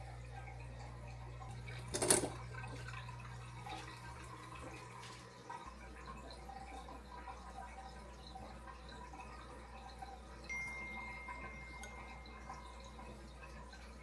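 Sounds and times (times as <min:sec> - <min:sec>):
low steady hum: 0:00.0 - 0:14.0
water trickling and dripping: 0:00.0 - 0:14.0
bell-like ring: 0:10.5 - 0:12.9.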